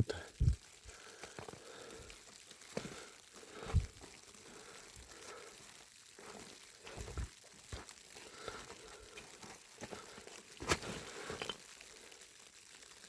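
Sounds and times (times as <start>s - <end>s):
crunching in snow: 6.1s - 11.6s.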